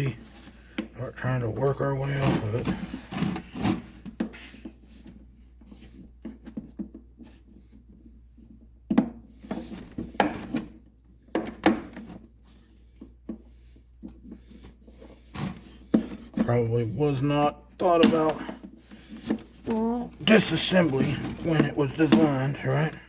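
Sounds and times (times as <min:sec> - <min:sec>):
plastic tube parts scraping: 0:17.8 - 0:23.0.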